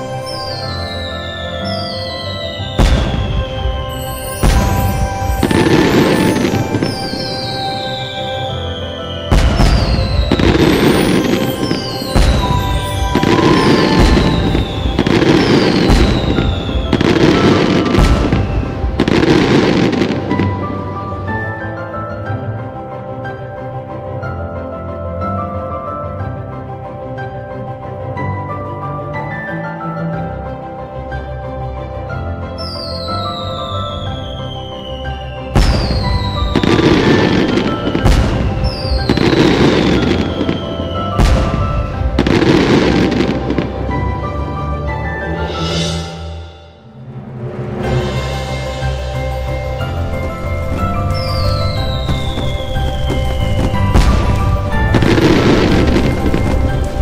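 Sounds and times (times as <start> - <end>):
fireworks bursting and crackling: 0.0 - 21.6, 32.8 - 44.1, 47.9 - 57.0
fireworks whistling: 0.0 - 21.8, 32.6 - 43.9, 47.9 - 57.0
background music: 0.0 - 57.0.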